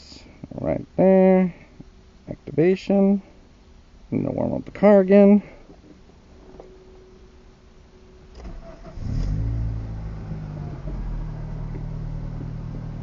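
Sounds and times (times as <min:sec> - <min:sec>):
car starter cranking: 0:08.3 - 0:11.8
car engine idling: 0:08.4 - 0:13.0.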